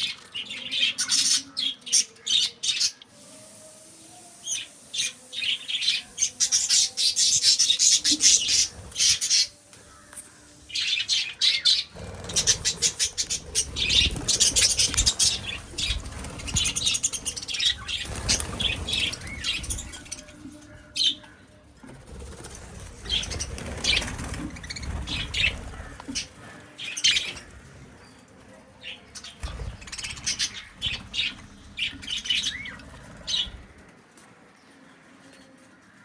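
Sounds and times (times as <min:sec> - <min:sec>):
budgerigars chirping: 0:05.9 - 0:10.0, 0:10.8 - 0:20.2
wings fluttering: 0:07.1 - 0:10.2, 0:11.9 - 0:20.6, 0:22.0 - 0:28.0, 0:29.2 - 0:34.0.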